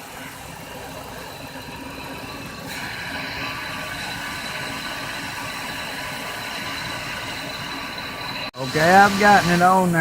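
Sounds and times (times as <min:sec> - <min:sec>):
car engine idling: 0:00.0 - 0:10.0
vacuum leak hiss: 0:08.7 - 0:10.0.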